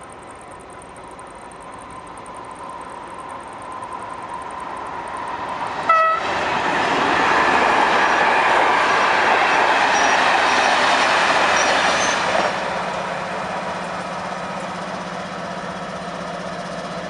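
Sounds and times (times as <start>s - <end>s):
idling diesel locomotive hum: 0.0s - 17.0s
train passing at speed: 0.0s - 17.0s
locomotive horn toot: 5.9s - 6.3s.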